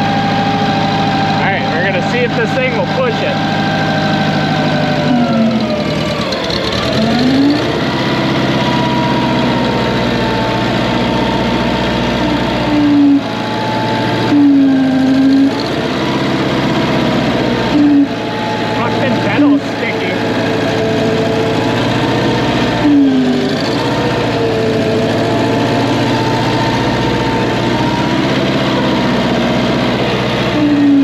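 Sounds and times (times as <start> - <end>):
engine running: 0.0 - 31.0
short loud whines: 0.0 - 31.0.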